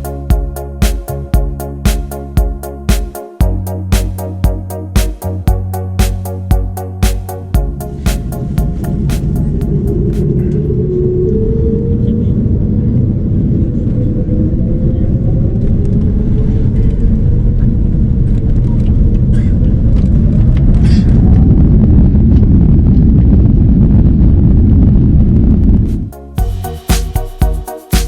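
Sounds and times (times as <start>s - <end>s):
jet engines rumbling: 7.5s - 26.1s.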